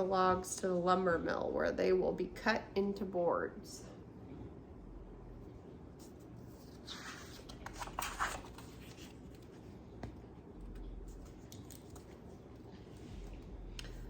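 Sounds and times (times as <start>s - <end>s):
book pages turning: 6.0s - 14.0s.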